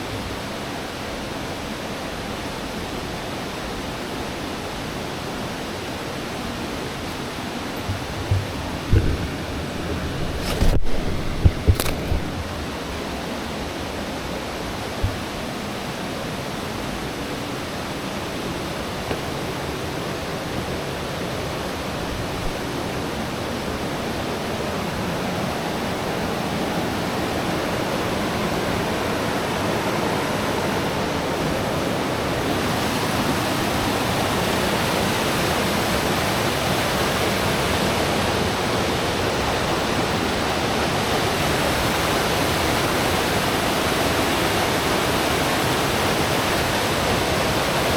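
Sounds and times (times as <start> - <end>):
river water rushing: 0.0 - 47.9
faint knock: 7.8 - 12.3, 15.0 - 15.2.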